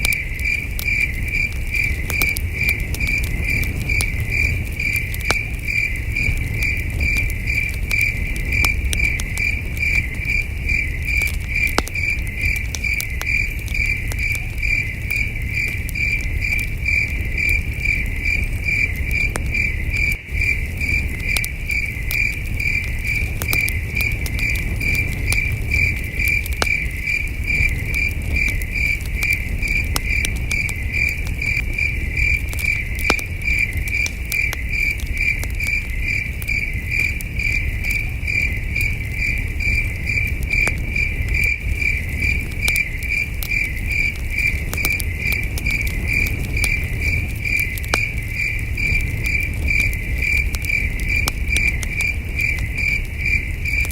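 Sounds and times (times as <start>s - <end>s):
campfire crackling and popping: 0.0s - 53.9s
crickets chirping: 0.0s - 53.9s.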